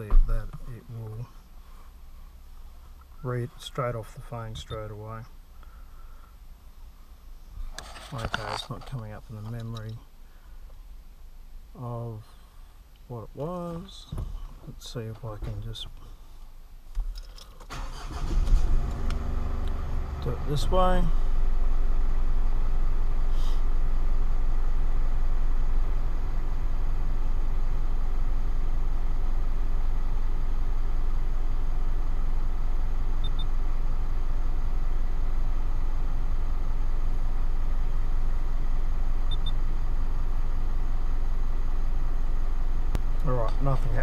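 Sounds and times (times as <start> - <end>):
car engine idling: 17.7 - 44.0.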